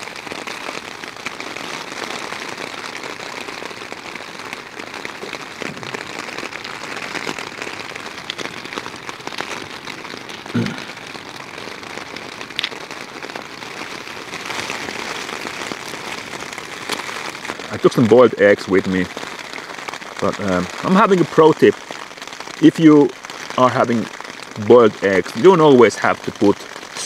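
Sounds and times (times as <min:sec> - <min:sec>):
heavy rain on a tent: 0:00.0 - 0:27.0
rain drop ticks: 0:00.0 - 0:27.0.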